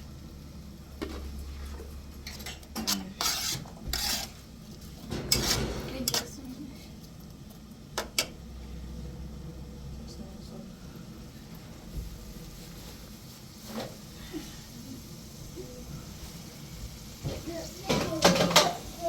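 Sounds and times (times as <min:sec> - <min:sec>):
objects scraping and clattering: 0:01.0 - 0:06.4, 0:17.2 - 0:18.8
low steady hum: 0:04.3 - 0:12.7.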